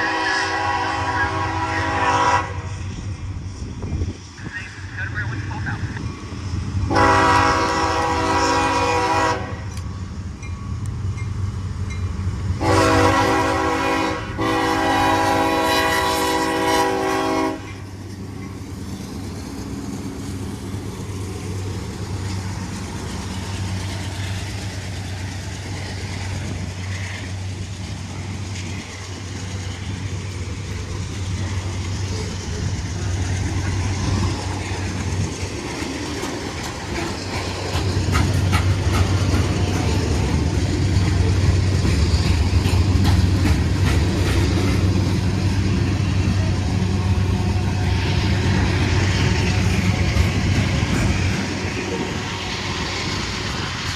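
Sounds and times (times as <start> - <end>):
locomotive horn blasts: 0.0 - 2.8, 6.9 - 9.7, 12.6 - 17.8
train rumbling past: 0.0 - 53.9.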